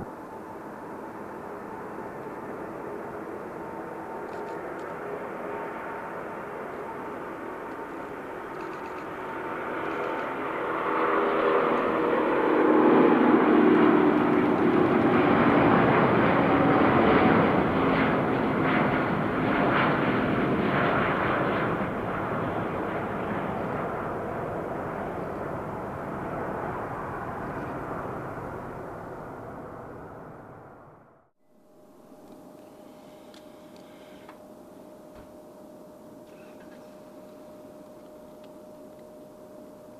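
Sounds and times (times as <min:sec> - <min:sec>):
jet airliner engines passing: 0:00.0 - 0:31.2.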